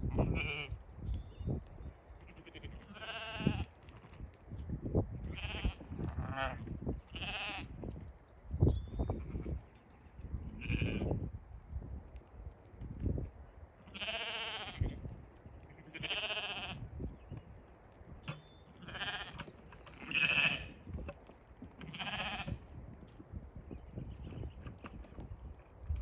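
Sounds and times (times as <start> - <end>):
sheep bleating: 0.1 - 0.8, 2.2 - 4.2, 5.2 - 7.7, 13.9 - 15.0, 15.7 - 16.9, 18.8 - 20.8, 21.8 - 22.6.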